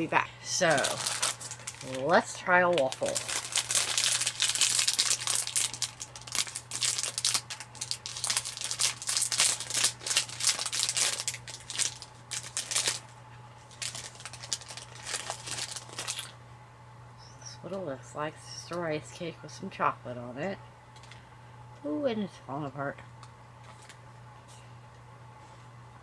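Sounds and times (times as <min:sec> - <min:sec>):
snack wrapper crinkling: 0:00.7 - 0:13.1, 0:13.7 - 0:16.4, 0:23.6 - 0:24.0.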